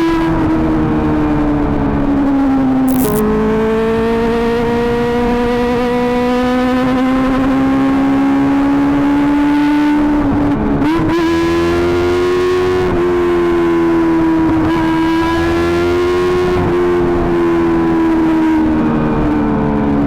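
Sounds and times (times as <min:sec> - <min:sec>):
high-pitched motorcycle engine: 0:02.9 - 0:03.2.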